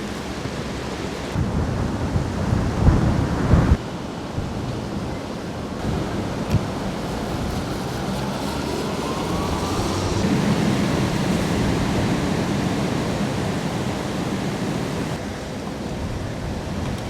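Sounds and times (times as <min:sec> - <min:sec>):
wind and rain rushing: 0:00.0 - 0:17.0
faint rising whistle: 0:07.7 - 0:13.1.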